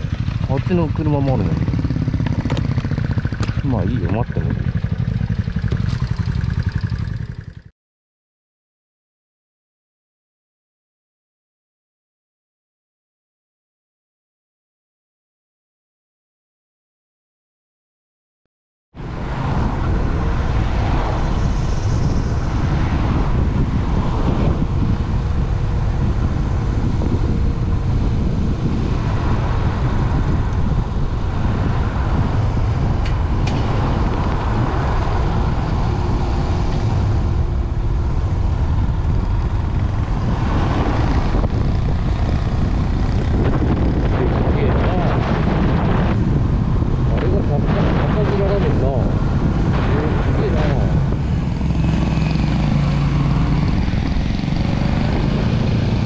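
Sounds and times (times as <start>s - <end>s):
motorcycle engine drone: 0.0s - 7.7s, 19.0s - 56.0s
road and air rush: 0.0s - 7.7s, 19.0s - 56.0s.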